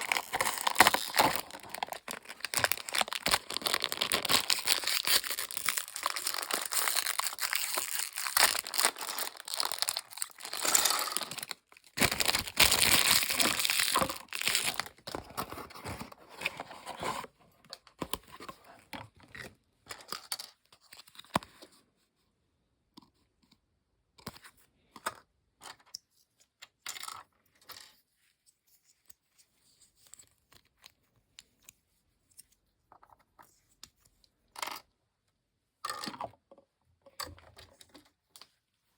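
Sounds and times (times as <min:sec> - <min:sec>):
plastic packaging crinkling and tearing: 0:00.0 - 0:16.0.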